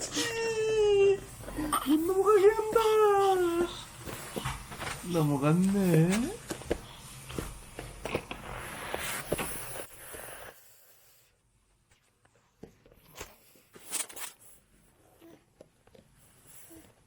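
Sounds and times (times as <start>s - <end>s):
rustling of clothes and bedding: 0.7s - 10.4s.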